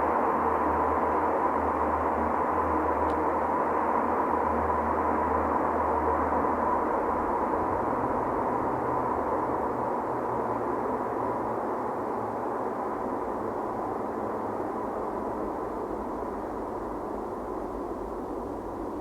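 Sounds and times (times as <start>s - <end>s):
car engine droning in tunnel: 0.0s - 19.0s.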